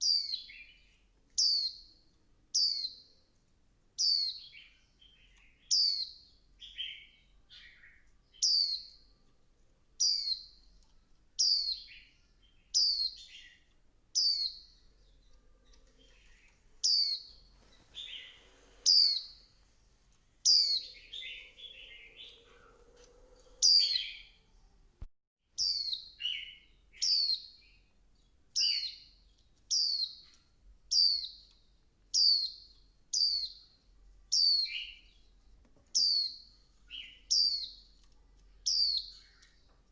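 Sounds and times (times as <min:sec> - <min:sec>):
bird high downward calls: 0:15.7 - 0:19.5, 0:20.4 - 0:24.4, 0:25.6 - 0:27.6, 0:30.9 - 0:31.5, 0:32.1 - 0:33.7, 0:36.0 - 0:37.8, 0:38.6 - 0:39.4
bird twittering: 0:16.0 - 0:17.4, 0:18.0 - 0:19.4, 0:20.4 - 0:24.4.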